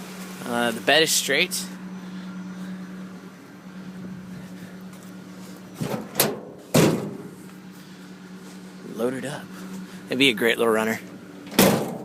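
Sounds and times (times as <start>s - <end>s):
steady low hum: 0.0s - 12.0s
truck door slam: 5.8s - 7.4s, 11.5s - 12.0s.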